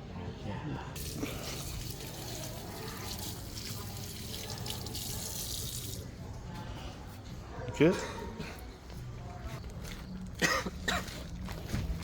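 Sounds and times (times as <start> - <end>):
water running from tap: 1.0 - 6.0.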